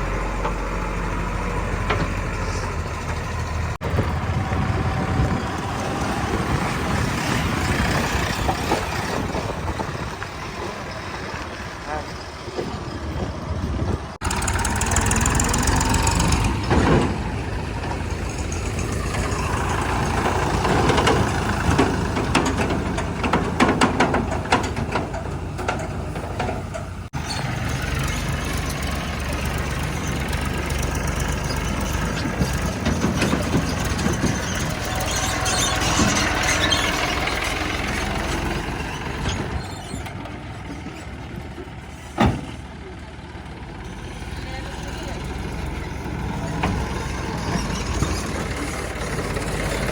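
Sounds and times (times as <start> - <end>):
backhoe diesel engine revving: 0.0 - 49.9
machinery clatter: 1.7 - 42.7.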